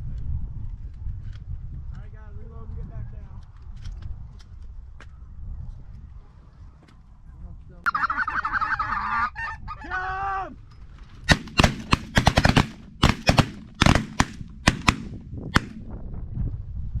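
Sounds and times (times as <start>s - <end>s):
geese honking: 7.9s - 10.0s
rapid shotgun shots: 11.3s - 15.9s.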